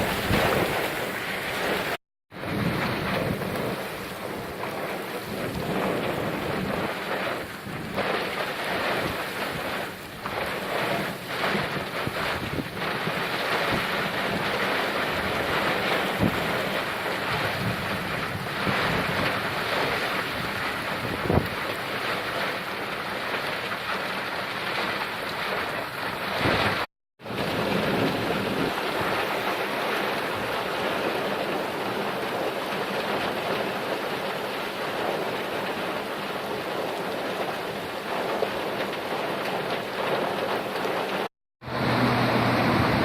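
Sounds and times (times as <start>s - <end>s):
wind buffeting microphone: 0.0s - 22.5s, 25.4s - 34.1s, 40.0s - 43.0s
heavy rain pouring: 0.0s - 43.0s.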